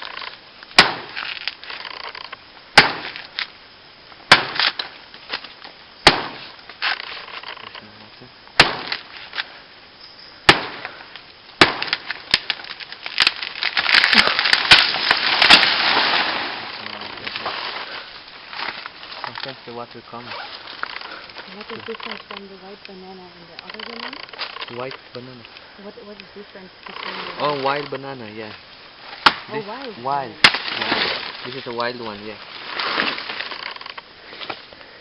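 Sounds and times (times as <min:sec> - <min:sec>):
rustling: 0:00.0 - 0:35.0
machete chopping plant stem: 0:00.8 - 0:01.2, 0:02.8 - 0:03.2, 0:04.3 - 0:04.9, 0:06.0 - 0:06.4, 0:08.6 - 0:09.0, 0:10.5 - 0:10.9, 0:11.6 - 0:12.4, 0:29.2 - 0:29.5.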